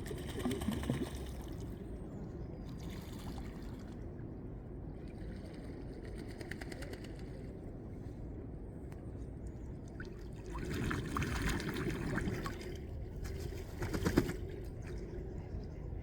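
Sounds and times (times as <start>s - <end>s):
ducks splashing with wings: 0.0s - 1.5s, 10.5s - 15.6s
low background rumble: 0.0s - 16.0s.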